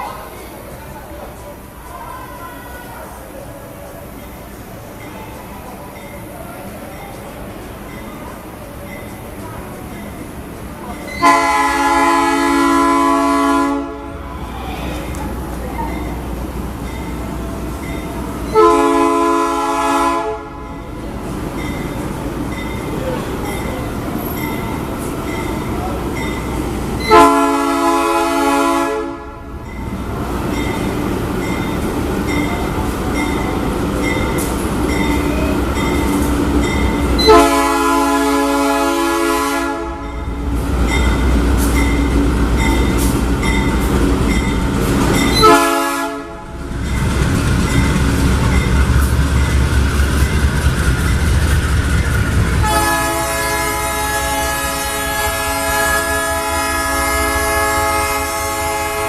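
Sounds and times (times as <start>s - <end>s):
train engine rumble: 0.0s - 59.0s
locomotive air horn blasts: 11.2s - 14.3s, 18.5s - 20.7s, 27.0s - 29.4s, 37.2s - 40.2s, 45.4s - 46.5s, 52.6s - 59.0s.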